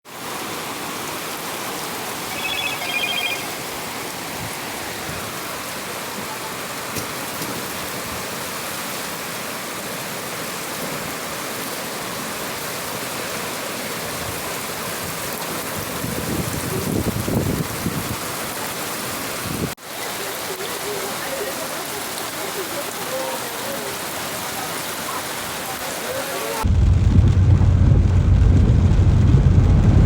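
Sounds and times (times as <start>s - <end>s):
heavy rain falling: 0.1s - 30.0s
high-pitched chirping tone: 2.3s - 3.7s.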